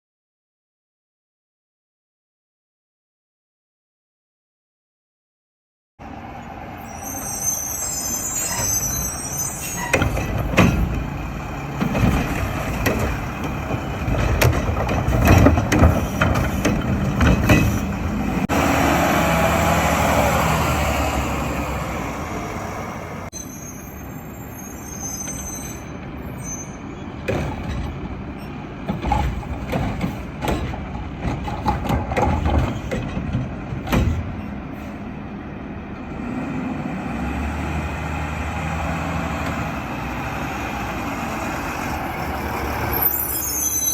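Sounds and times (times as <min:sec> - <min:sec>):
garbage truck arm clanking: 0:09.9 - 0:18.2, 0:28.8 - 0:34.5
diesel engine running: 0:10.0 - 0:23.3.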